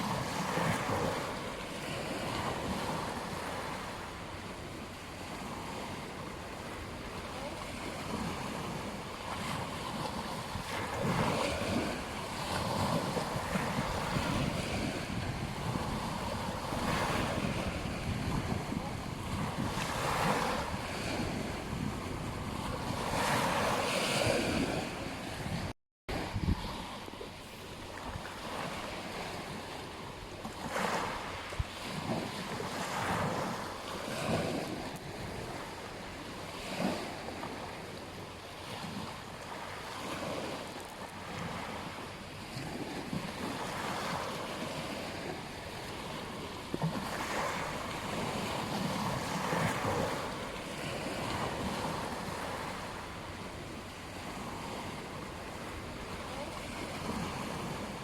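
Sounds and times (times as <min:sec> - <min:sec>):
waves washing onto beach: 0:00.0 - 0:58.0
wind buffeting microphone: 0:04.4 - 0:30.2.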